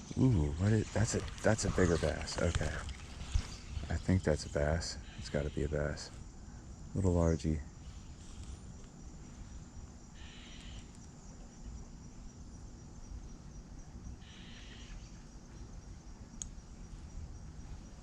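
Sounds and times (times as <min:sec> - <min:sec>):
high insect drone: 0:00.0 - 0:18.0
short insect buzzes: 0:07.8 - 0:11.1.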